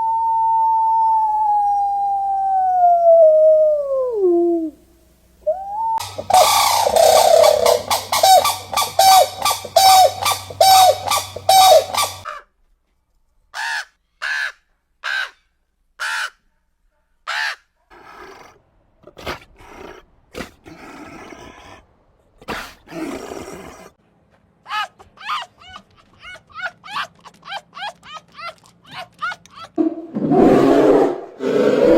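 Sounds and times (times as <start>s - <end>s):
harsh caw-like bird calls: 6.0s - 12.4s.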